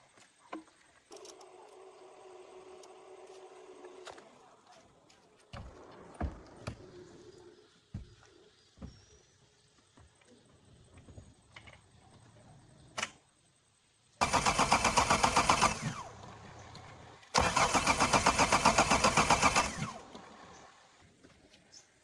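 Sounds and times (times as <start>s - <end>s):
car starter cranking engine: 14.2s - 20.8s.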